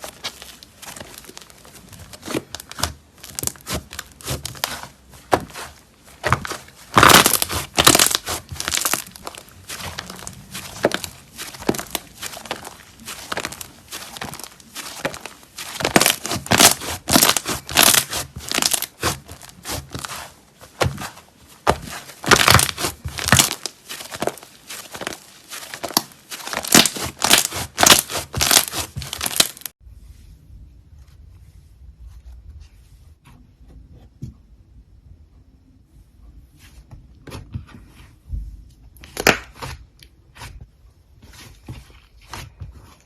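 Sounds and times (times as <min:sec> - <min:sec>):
slime crackling and popping: 0:00.0 - 0:29.7.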